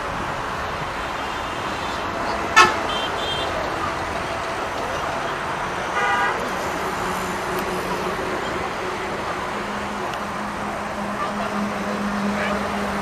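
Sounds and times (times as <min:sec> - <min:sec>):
road traffic noise: 0:00.0 - 0:13.0
vehicle horn honk: 0:01.2 - 0:03.6, 0:05.3 - 0:06.8.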